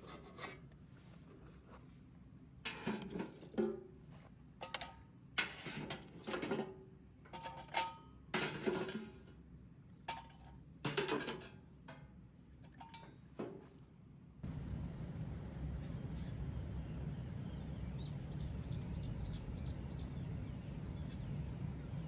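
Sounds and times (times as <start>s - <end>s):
cookware and utensils clinking: 7.4s - 9.2s.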